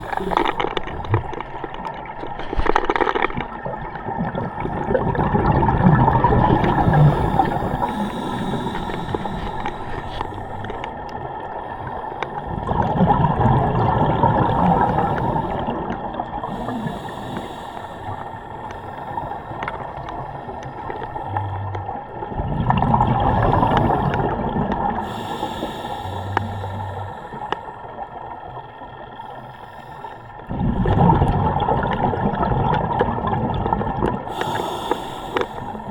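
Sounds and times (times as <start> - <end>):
faint clicks: 0.0 - 3.6, 6.6 - 12.5, 14.5 - 22.0, 23.3 - 27.8, 34.4 - 35.9
underwater air bubbles gurgling: 0.0 - 35.9.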